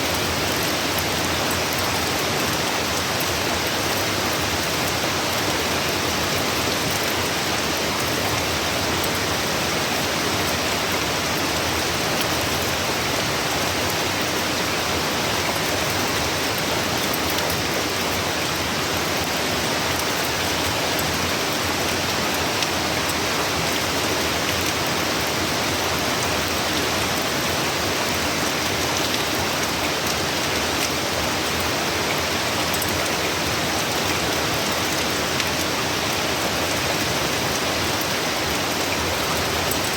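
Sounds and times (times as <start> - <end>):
rain drop ticks: 31.6 - 33.2, 38.8 - 39.9.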